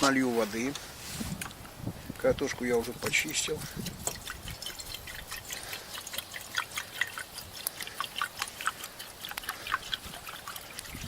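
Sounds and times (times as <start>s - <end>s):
water pouring into a pot: 3.6s - 11.0s.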